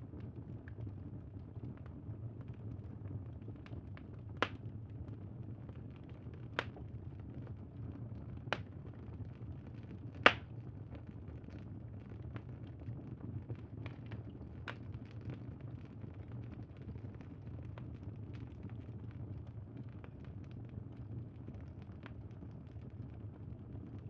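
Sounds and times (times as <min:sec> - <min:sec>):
bonfire crackling: 0:10.2 - 0:10.5.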